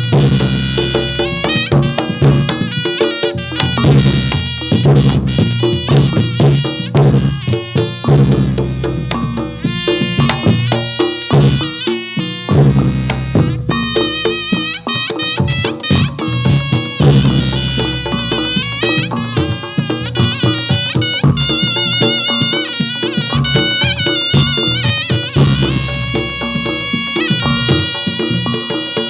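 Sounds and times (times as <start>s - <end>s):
drum and percussion strokes: 0.0s - 29.0s
shawm playing wavering melody: 0.0s - 29.0s.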